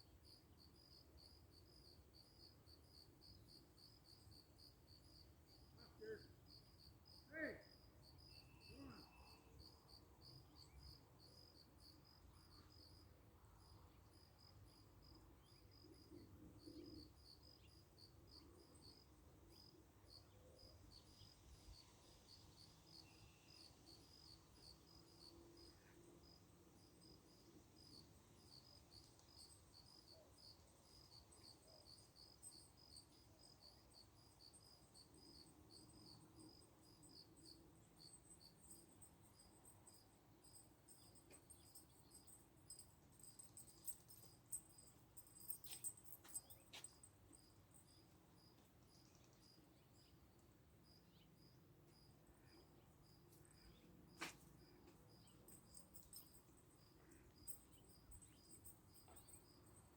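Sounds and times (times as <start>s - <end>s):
faint insect chirping: 0.0s - 59.9s.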